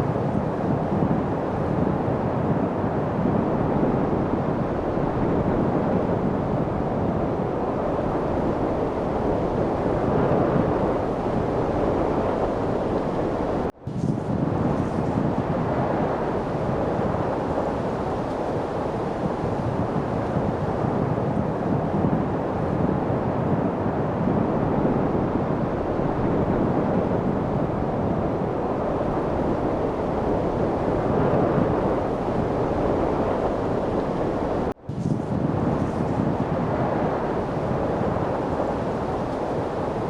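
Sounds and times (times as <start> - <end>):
steady wind rushing: 0.0 - 40.0.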